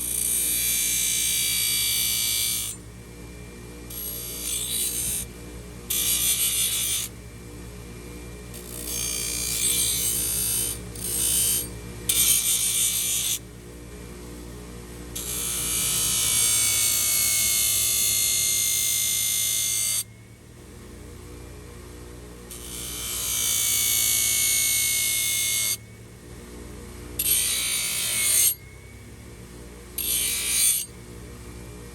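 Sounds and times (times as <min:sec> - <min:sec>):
power tool buzzing: 0:00.0 - 0:02.8, 0:03.9 - 0:13.6, 0:15.2 - 0:20.1, 0:22.5 - 0:25.8, 0:27.1 - 0:31.5.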